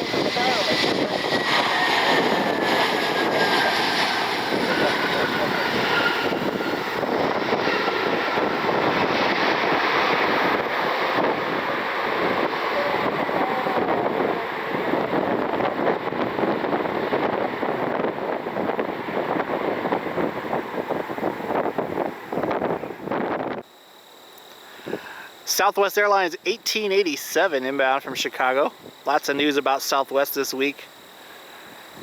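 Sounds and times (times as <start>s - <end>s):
storm wind buffeting microphone: 0.0s - 23.6s.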